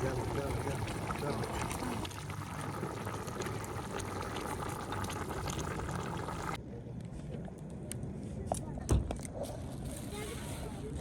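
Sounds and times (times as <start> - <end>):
fire low rumble: 0.0 - 6.6
pot of liquid bubbling: 0.0 - 6.6.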